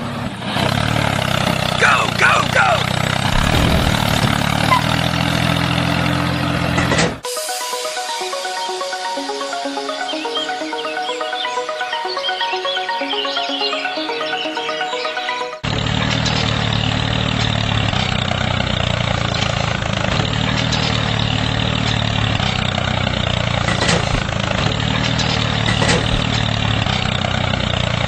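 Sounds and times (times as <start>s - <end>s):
motor idling: 1.0s - 7.3s, 15.6s - 28.0s.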